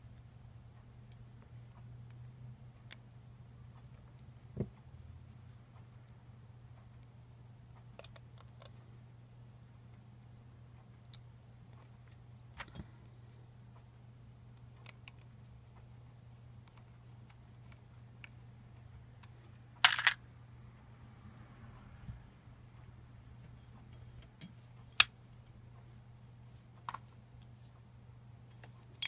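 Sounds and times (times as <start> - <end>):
small hard parts clicking: 19.2 - 20.2.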